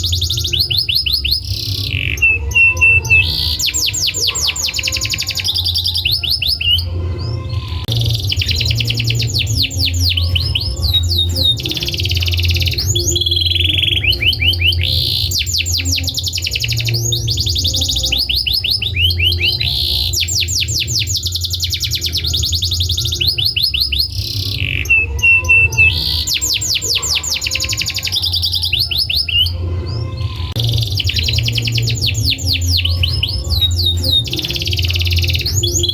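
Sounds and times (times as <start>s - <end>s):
canary trilling: 0.0s - 35.9s
steady low hum: 6.8s - 23.2s.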